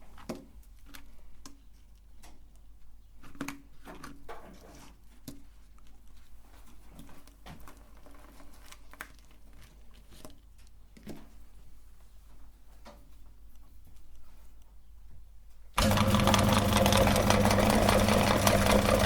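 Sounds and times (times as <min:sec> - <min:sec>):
soft rustling: 0:04.5 - 0:15.2.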